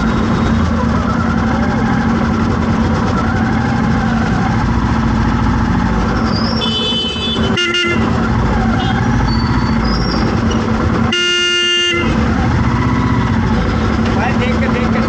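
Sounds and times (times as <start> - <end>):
road traffic: 0.0 - 15.0
vehicle engine hum: 0.0 - 15.0
car horns honking: 6.3 - 12.3.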